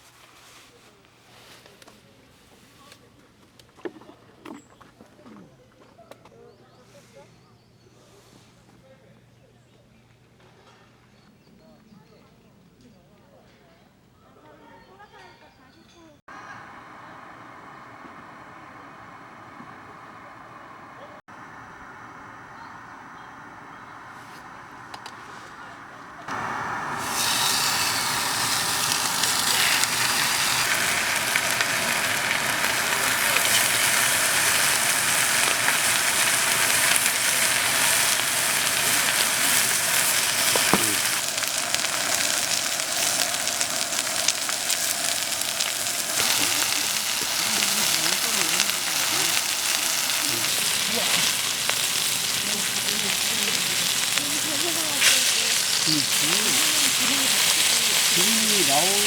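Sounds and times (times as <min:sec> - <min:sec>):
food sizzling in a pan: 0:26.3 - 0:59.0.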